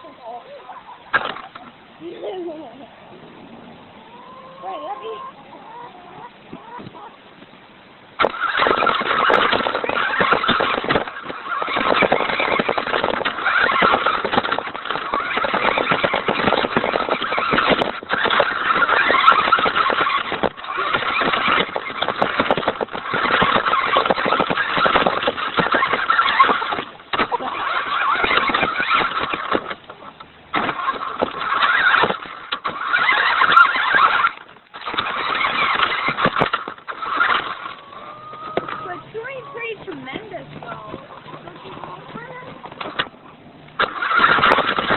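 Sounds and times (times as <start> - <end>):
tyres crackling on rough ground: 0.0 - 2.8, 4.2 - 44.9
toy truck motor whining: 8.2 - 29.8, 30.5 - 43.1, 43.8 - 44.9.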